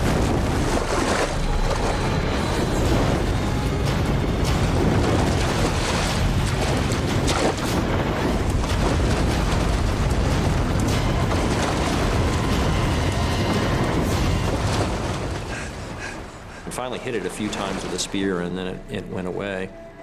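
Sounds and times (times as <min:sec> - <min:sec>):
low rumble: 0:00.0 - 0:17.9
churning water: 0:00.0 - 0:20.0
dramatic music: 0:00.0 - 0:20.0.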